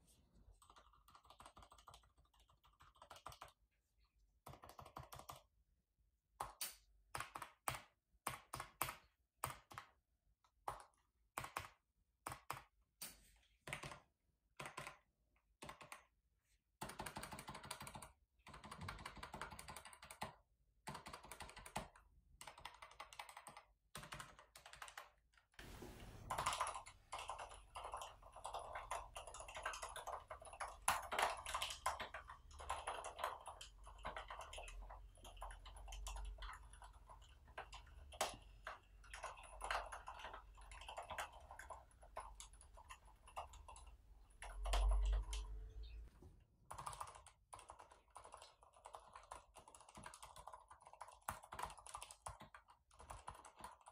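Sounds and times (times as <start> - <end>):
soft keyboard typing: 0.4 - 5.7, 6.3 - 16.2, 16.8 - 53.9
faint background hiss: 25.6 - 26.3.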